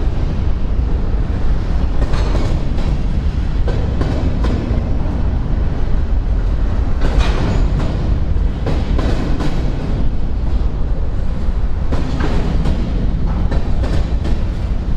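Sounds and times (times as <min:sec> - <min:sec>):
freight train rumbling past: 0:00.0 - 0:14.9
wheels clicking over rail joints: 0:01.6 - 0:05.2, 0:06.8 - 0:10.6.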